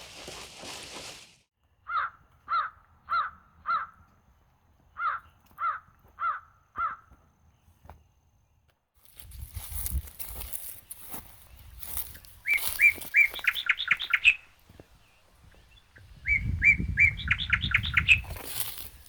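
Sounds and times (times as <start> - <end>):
crow cawing: 1.9 - 4.1, 5.0 - 7.1.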